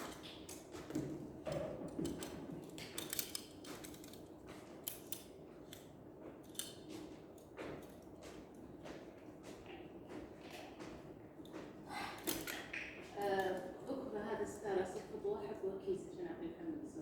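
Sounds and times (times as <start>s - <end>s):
hand tools clicking and snipping: 0.0s - 8.2s, 12.2s - 13.7s
low room hum: 0.0s - 17.0s.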